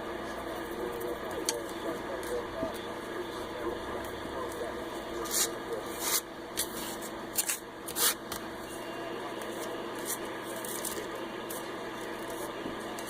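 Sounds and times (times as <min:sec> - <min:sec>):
radio static hiss: 0:00.0 - 0:07.2, 0:09.0 - 0:13.0.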